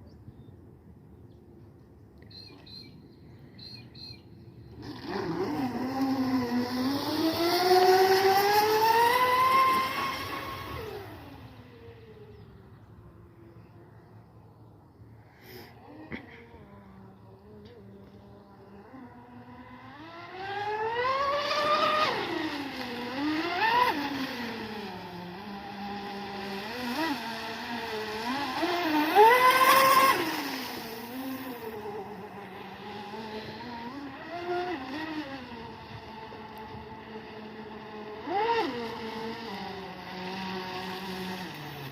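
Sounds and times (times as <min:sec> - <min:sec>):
rc boat electric motors whining: 0:02.2 - 0:41.9.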